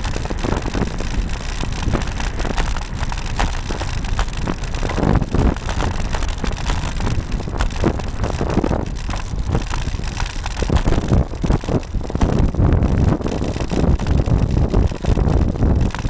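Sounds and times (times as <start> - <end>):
road rumble: 0.0 - 16.0
wind buffeting microphone: 0.0 - 16.0.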